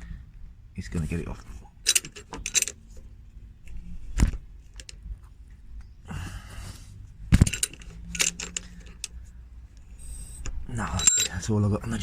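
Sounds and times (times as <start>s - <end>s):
metal clinks and knocks of jack: 1.8s - 2.8s, 7.4s - 9.2s, 10.9s - 11.4s.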